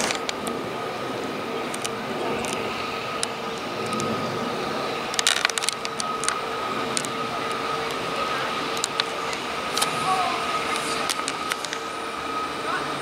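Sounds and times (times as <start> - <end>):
train running hum: 0.0 - 13.0
sharp clicks: 1.7 - 4.2, 5.1 - 8.0, 8.7 - 10.0, 10.7 - 11.8.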